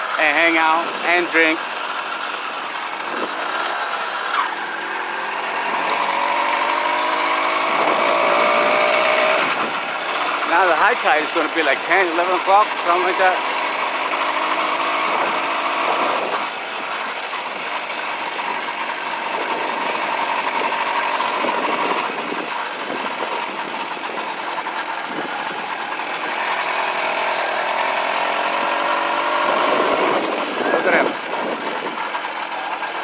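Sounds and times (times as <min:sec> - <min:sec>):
small gasoline engine buzzing: 0:00.8 - 0:33.0.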